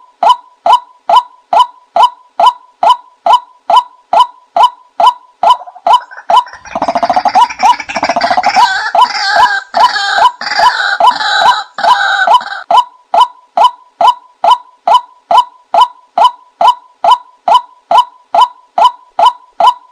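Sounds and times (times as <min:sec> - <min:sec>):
rapid bubbling bird calls: 0:05.5 - 0:09.5.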